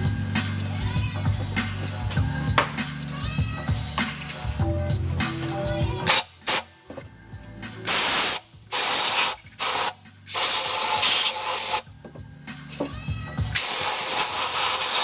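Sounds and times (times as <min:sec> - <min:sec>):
pressurised spray hissing: 0:07.9 - 0:11.8, 0:13.5 - 0:15.0.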